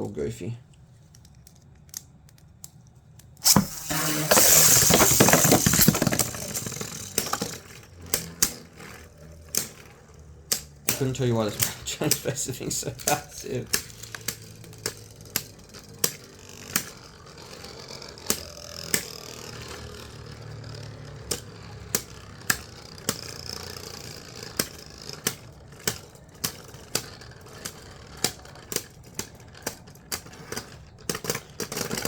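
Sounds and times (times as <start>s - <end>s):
spinning tops clacking together: 3.4s - 25.3s
spinning tops whirring: 3.4s - 28.7s.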